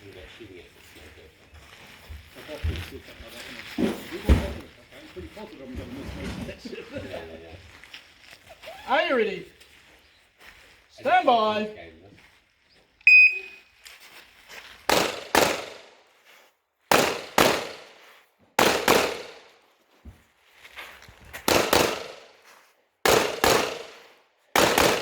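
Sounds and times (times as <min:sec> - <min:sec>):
shot timer beep: 0:13.1 - 0:13.7
pistol shots: 0:14.9 - 0:15.9, 0:16.9 - 0:18.0, 0:18.6 - 0:19.5, 0:21.4 - 0:22.3, 0:23.0 - 0:25.0.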